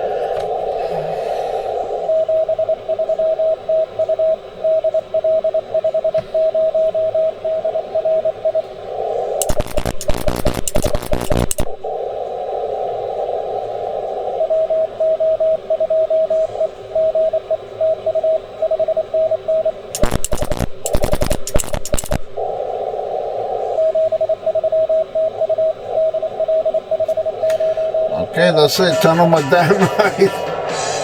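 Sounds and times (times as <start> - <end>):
harsh radio crackling: 0.0 - 31.0
radio hiss: 0.0 - 31.0
morse code beeping tone: 9.4 - 11.8, 20.0 - 22.4, 24.9 - 30.4.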